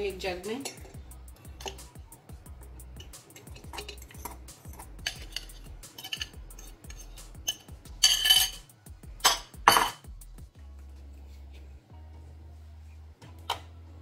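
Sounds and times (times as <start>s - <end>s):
glass bowl clinking against jar: 1.6s - 1.8s, 3.0s - 8.6s, 9.2s - 10.0s.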